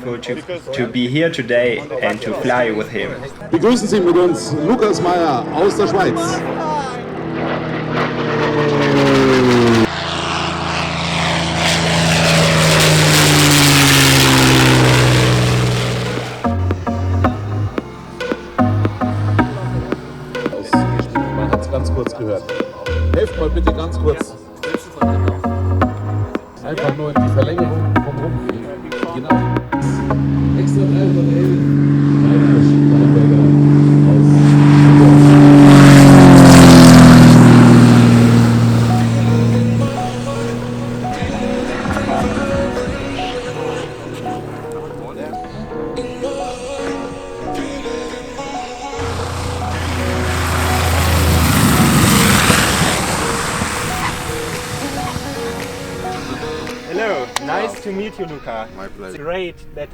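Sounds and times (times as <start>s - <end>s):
propeller airplane flying past: 2.8s - 58.2s.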